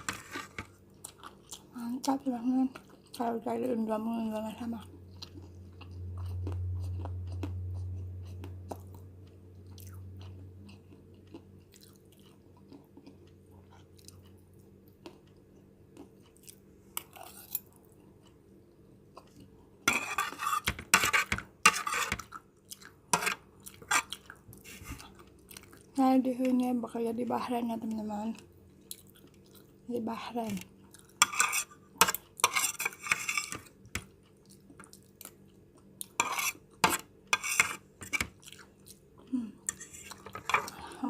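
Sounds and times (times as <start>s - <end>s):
person chewing noodles: 0.0s - 2.1s, 4.9s - 20.3s, 21.2s - 26.0s, 28.4s - 29.9s, 30.8s - 32.5s, 33.3s - 41.0s
crunchy chewing: 0.1s - 1.7s, 4.9s - 18.5s, 30.8s - 41.0s.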